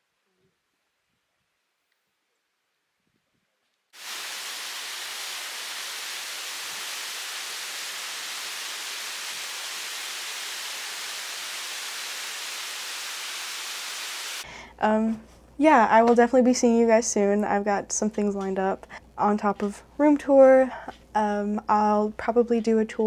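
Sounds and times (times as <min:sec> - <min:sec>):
waterfall rushing: 0:04.0 - 0:14.4.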